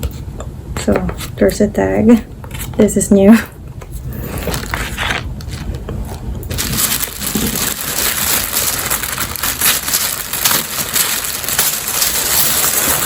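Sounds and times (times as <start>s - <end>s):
wrapping paper crinkling: 4.2s - 13.0s.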